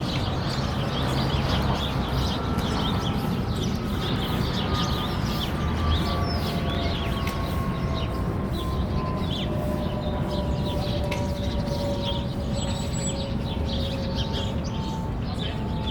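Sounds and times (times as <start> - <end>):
sparrows chirping: 0.0 - 15.9.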